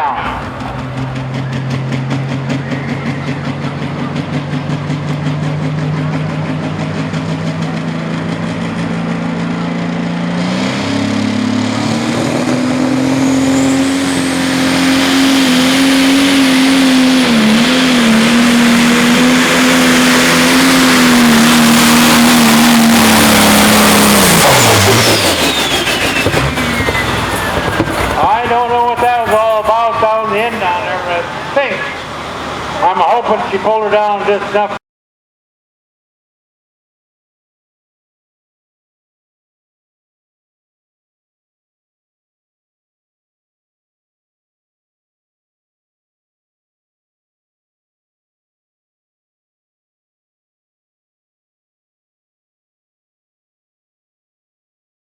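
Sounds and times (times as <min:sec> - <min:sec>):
turbo whistle: 0:00.0 - 0:04.0, 0:23.3 - 0:28.6
diesel engine revving: 0:00.0 - 0:34.8.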